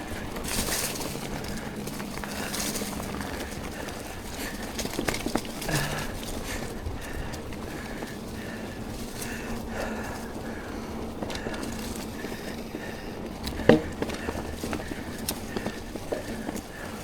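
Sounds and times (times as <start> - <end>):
bike rattling over bumps: 0.0 - 17.0
bike tyres rolling on dirt: 0.0 - 17.0.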